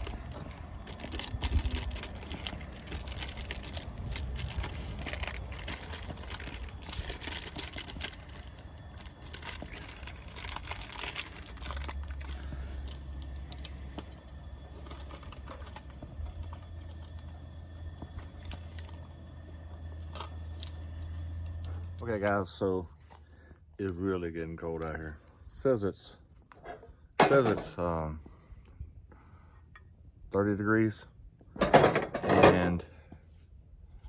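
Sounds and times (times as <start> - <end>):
low rumble: 0.0 - 22.6.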